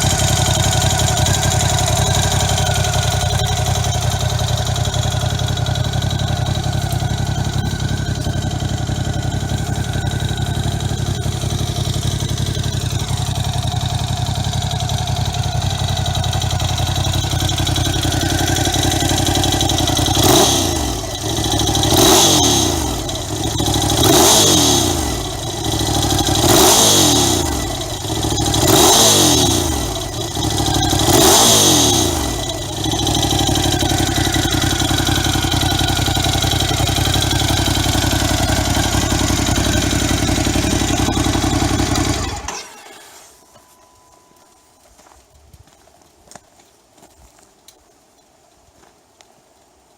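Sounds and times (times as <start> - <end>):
motorcycle engine idling and revving: 0.0 - 45.2.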